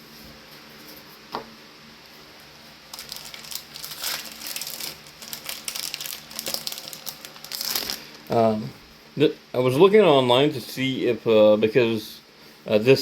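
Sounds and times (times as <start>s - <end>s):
plastic foil wrapper crinkling: 2.9s - 8.4s.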